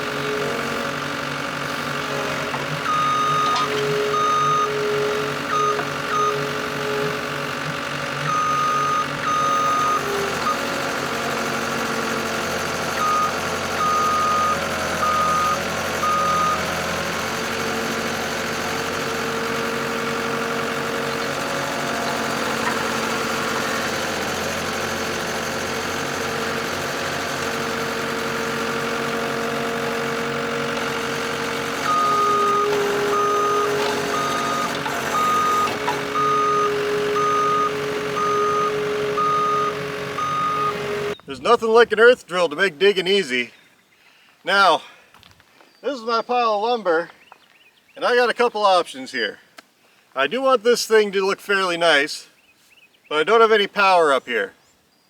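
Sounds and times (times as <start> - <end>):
earth auger drilling: 0.0 - 41.6
skid steer engine running: 0.0 - 41.9
backup alarm beeping: 2.8 - 7.1, 8.2 - 10.7, 12.9 - 17.5, 30.8 - 41.3.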